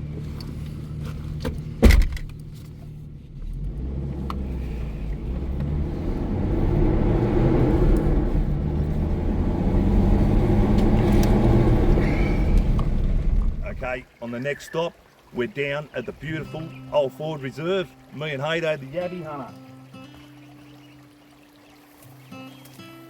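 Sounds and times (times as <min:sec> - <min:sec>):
car engine driving off: 0:00.0 - 0:14.0
road rumble: 0:00.0 - 0:14.1
sharp thump: 0:01.4 - 0:02.3.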